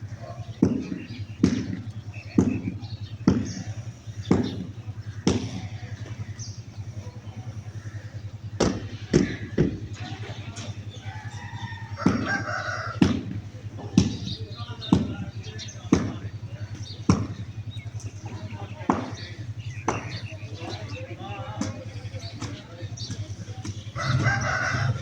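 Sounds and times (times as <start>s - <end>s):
chickens calling: 0.0s - 25.0s
steady low hum: 0.0s - 25.0s
heavy thuds: 0.2s - 25.0s
rooster crowing: 10.7s - 13.3s, 24.0s - 25.0s.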